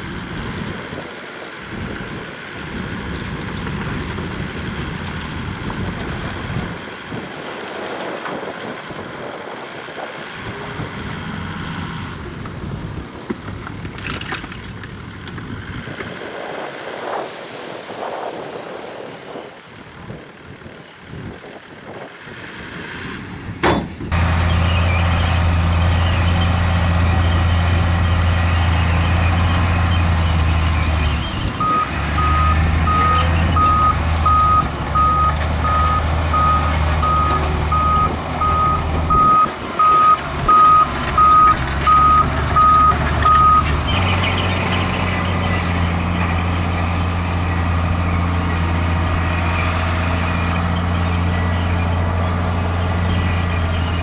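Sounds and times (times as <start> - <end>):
heavy diesel machinery running: 0.0 - 14.0, 19.8 - 54.0
sharp knock: 23.6 - 24.1
reversing alarm beeping: 31.6 - 43.7.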